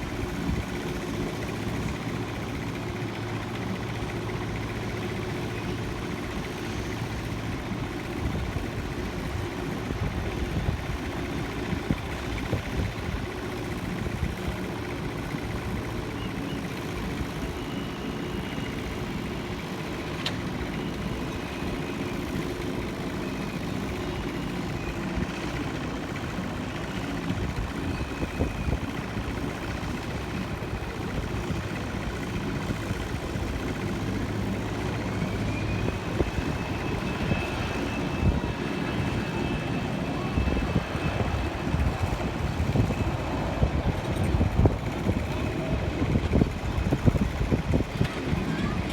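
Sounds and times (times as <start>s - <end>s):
engine rumble: 0.0s - 48.9s.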